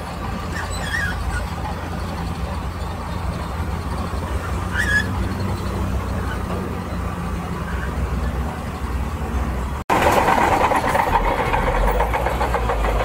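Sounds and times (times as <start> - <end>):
diesel machinery rumbling: 0.0 - 13.0
high squeak: 0.5 - 1.6, 2.8 - 6.6.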